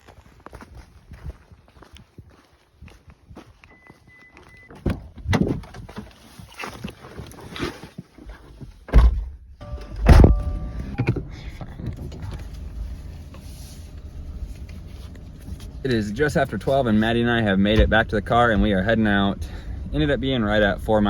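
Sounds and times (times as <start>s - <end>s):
handling noises: 4.2s - 19.7s
car doors shutting: 8.9s - 16.0s, 17.6s - 20.0s
low rumble inside car: 9.0s - 21.0s
short car chime: 9.6s - 11.2s.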